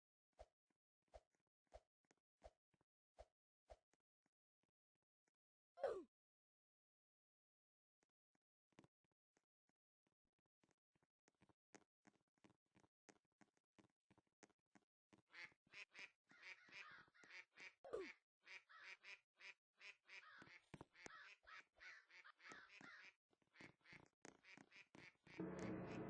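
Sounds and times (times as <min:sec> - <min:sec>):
birds calling short repeated calls: 0:15.3 - 0:25.4.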